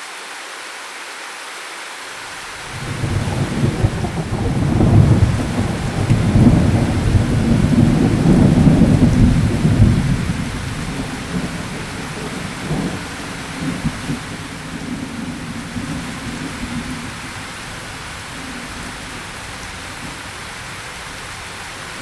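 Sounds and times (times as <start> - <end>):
steady rain: 0.0 - 22.0
deep thunder rumble: 2.7 - 22.0.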